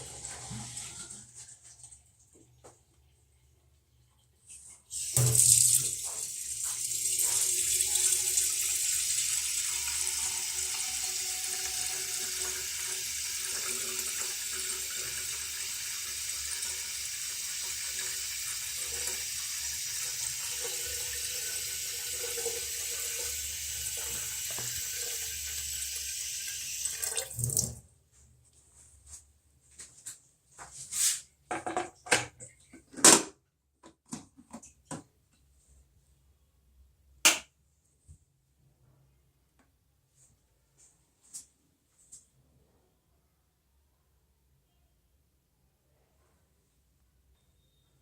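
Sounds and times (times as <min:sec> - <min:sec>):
tap water running into container: 0:04.9 - 0:27.8.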